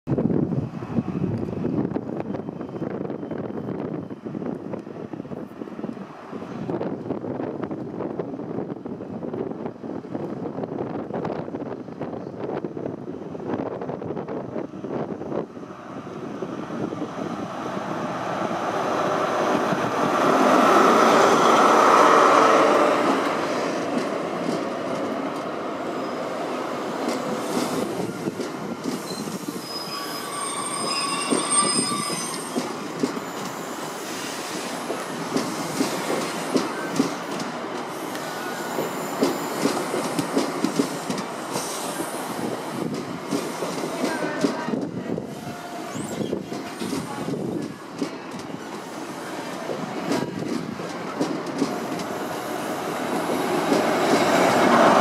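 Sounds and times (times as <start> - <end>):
diesel train passing: 0.2 - 55.0
wheel and brake squeal: 29.0 - 32.8, 45.4 - 47.0
wheels clicking over rail joints: 49.6 - 52.3.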